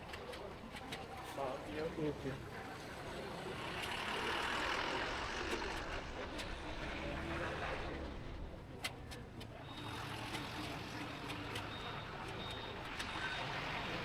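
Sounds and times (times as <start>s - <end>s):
motorbike engine and road noise: 0.0s - 14.0s.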